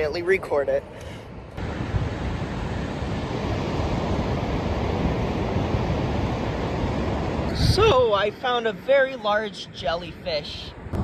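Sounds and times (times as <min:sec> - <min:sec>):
ocean surf rushing: 0:00.0 - 0:11.0
wind buffeting microphone: 0:00.0 - 0:11.0.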